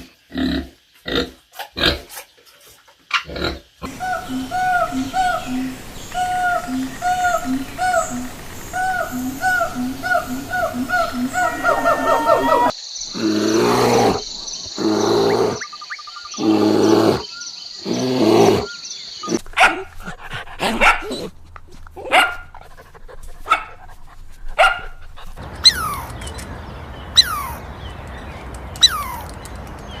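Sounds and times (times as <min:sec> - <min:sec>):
animal chirps: 0:03.8 - 0:19.5, 0:25.6 - 0:26.4, 0:27.1 - 0:27.6, 0:28.8 - 0:29.2
dog barking: 0:19.6 - 0:19.9, 0:20.6 - 0:21.3, 0:22.0 - 0:22.6, 0:23.4 - 0:23.7, 0:24.6 - 0:25.0.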